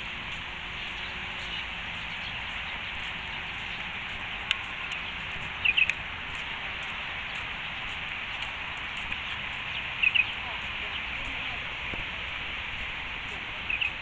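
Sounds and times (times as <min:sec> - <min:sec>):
steady outdoor hiss: 0:00.0 - 0:14.0
bird chirping: 0:00.8 - 0:06.0, 0:08.7 - 0:12.3, 0:13.5 - 0:14.0
sharp tick: 0:05.8 - 0:06.0.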